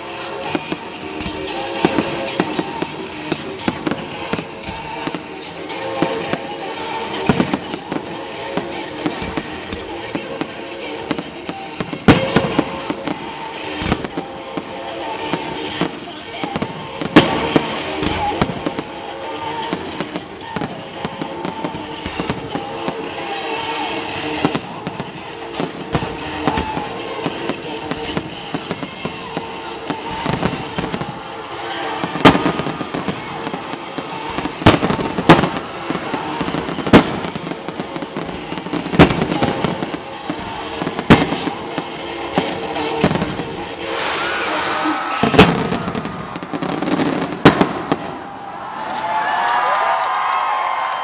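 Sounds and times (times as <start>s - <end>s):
music: 0.0s - 48.5s
fireworks bangs: 0.0s - 48.6s
voices: 0.0s - 50.0s.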